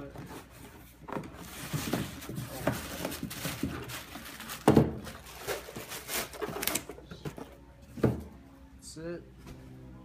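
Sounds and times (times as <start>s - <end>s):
cardboard rustling and scraping: 0.0s - 7.5s.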